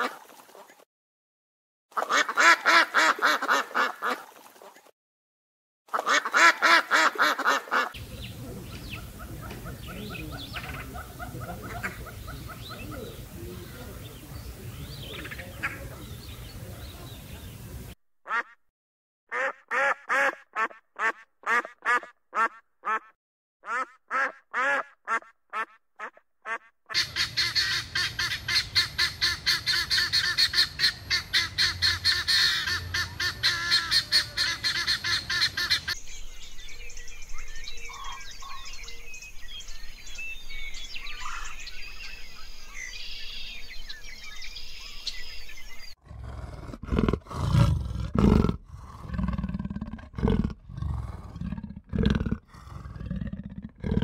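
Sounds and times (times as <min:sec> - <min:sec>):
ducks quacking: 0:02.0 - 0:04.2, 0:05.9 - 0:16.2, 0:18.3 - 0:18.6, 0:19.3 - 0:36.0
loud deep animal call: 0:46.0 - 0:54.0.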